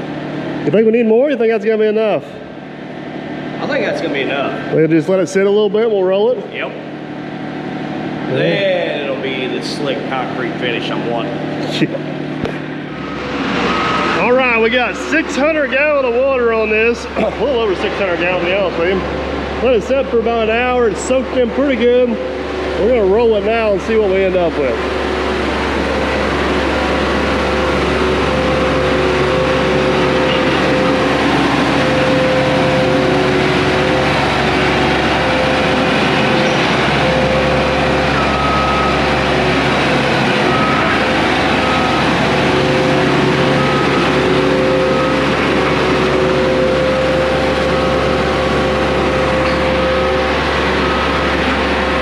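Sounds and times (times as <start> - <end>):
diesel roller engine running: 0.0 - 52.0.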